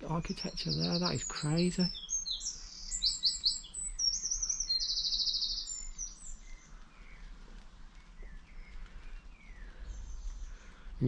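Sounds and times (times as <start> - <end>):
songbird trilling: 0.0 - 7.3.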